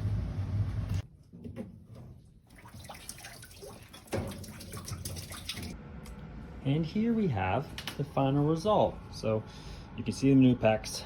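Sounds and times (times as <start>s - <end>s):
water running from a tap: 2.6s - 5.8s.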